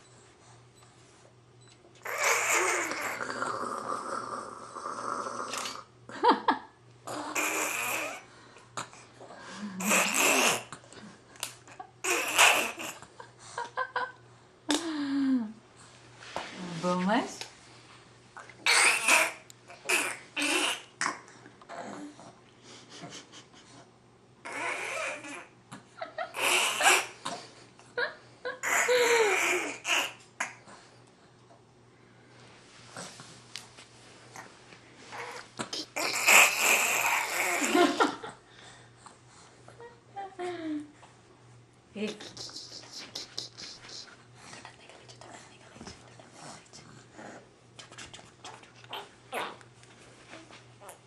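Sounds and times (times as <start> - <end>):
baby making funny noises: 2.0 - 3.2, 7.1 - 8.3, 9.8 - 10.7, 12.0 - 13.0, 18.6 - 20.9, 24.4 - 25.5, 26.4 - 27.2, 28.6 - 30.6, 35.2 - 37.9
child making spluttering noises: 35.6 - 37.7
mouth clicks: 42.1 - 44.1.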